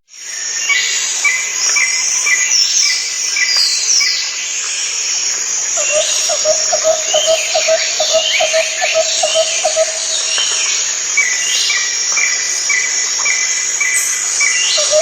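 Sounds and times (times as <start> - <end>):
birds chirping high calls: 5.8 - 15.0.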